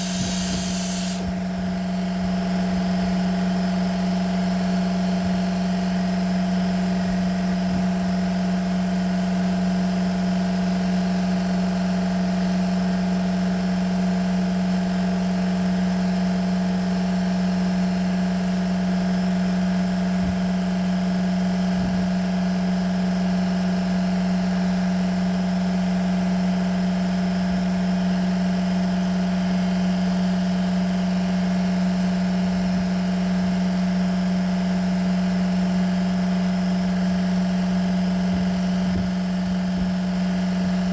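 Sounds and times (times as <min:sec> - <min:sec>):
power tool motor whining: 0:00.0 - 0:01.3.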